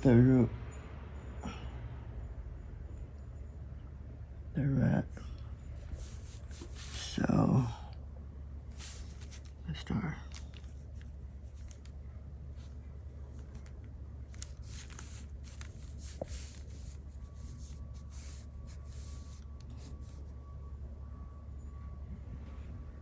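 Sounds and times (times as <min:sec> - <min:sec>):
steady low hum: 0:00.0 - 0:23.0
brush swishing on paper: 0:05.9 - 0:07.3, 0:08.7 - 0:09.6, 0:14.3 - 0:20.4.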